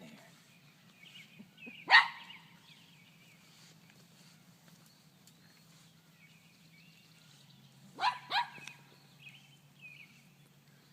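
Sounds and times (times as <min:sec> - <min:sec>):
dog barking: 0:01.8 - 0:02.3, 0:08.0 - 0:08.7.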